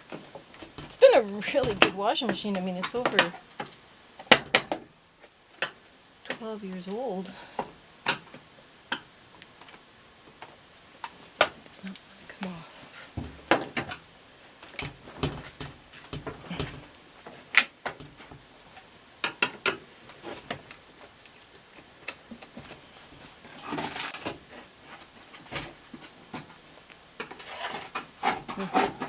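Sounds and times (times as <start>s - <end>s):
tools clicking and knocking on plastic: 1.6s - 4.9s, 14.7s - 18.4s, 19.2s - 20.8s.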